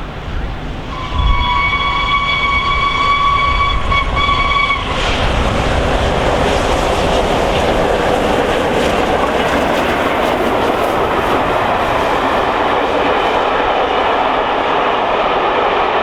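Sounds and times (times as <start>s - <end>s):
steam locomotive whistle: 0.0s - 6.2s
train rushing and rattling past: 0.0s - 16.0s.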